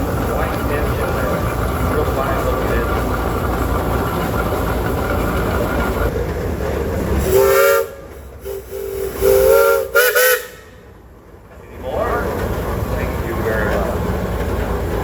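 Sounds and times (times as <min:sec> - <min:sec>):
low rumble of engines: 0:00.0 - 0:15.0
steam whistle blasts: 0:07.2 - 0:10.8.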